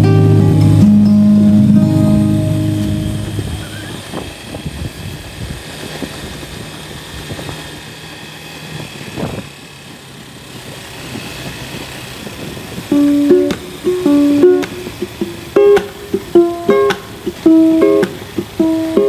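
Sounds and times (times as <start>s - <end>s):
motorcycle engine running: 0.0s - 16.1s
road noise: 0.0s - 19.0s
wind noise: 1.7s - 7.8s, 8.7s - 9.6s.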